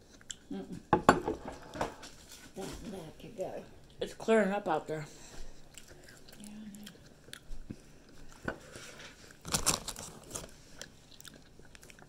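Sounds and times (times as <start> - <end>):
chewing and crunching food: 0.0 - 0.9, 5.3 - 12.0.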